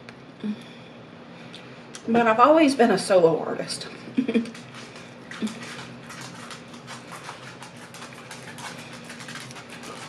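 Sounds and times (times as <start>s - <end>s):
faint steady hum: 0.0s - 10.0s
chewing and mouth sounds: 4.4s - 10.0s.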